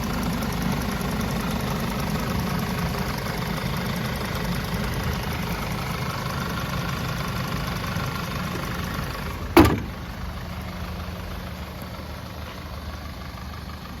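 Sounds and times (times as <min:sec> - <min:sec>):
car engine idling: 0:00.0 - 0:14.0
sharp thump: 0:09.6 - 0:10.1.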